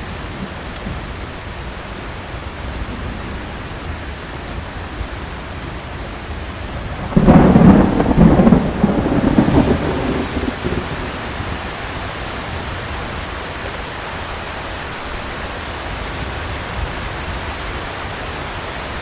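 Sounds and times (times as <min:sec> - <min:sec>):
heavy rain: 0:00.0 - 0:19.0
thunder clap rumbling: 0:00.1 - 0:13.4.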